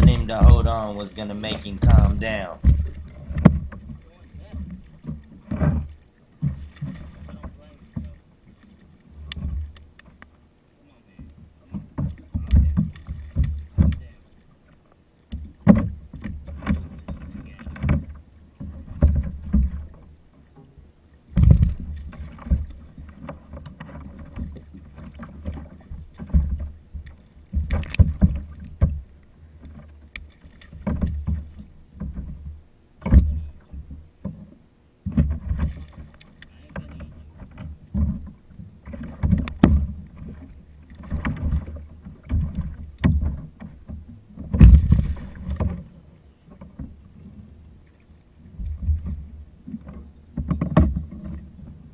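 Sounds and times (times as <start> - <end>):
water moving against boat: 0.0 - 51.9.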